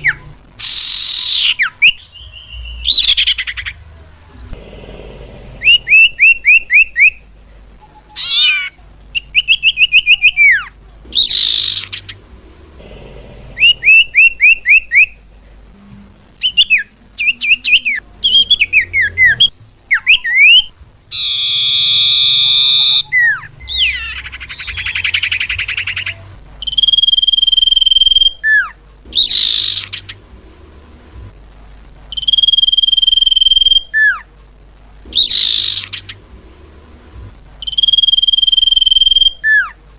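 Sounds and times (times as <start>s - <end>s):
bird song whistles: 0.0s - 3.8s, 5.6s - 7.2s, 8.2s - 12.2s, 13.6s - 15.2s, 16.4s - 30.2s, 32.1s - 34.2s, 35.1s - 36.2s, 37.6s - 39.8s
harsh buzzy bird calls: 0.0s - 4.0s, 4.6s - 15.4s, 16.4s - 31.0s, 32.1s - 34.3s, 35.0s - 37.0s, 37.6s - 39.8s.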